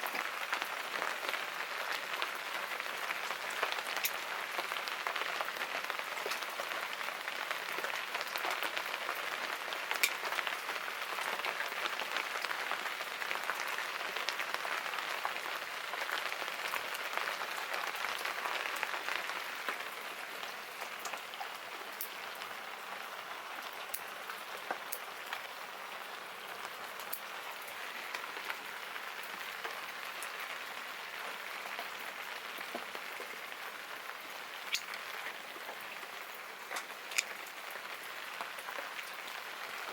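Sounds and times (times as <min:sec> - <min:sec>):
steady rain falling: 0:00.0 - 0:39.9
sharp drips and taps: 0:34.6 - 0:35.8, 0:36.7 - 0:37.6.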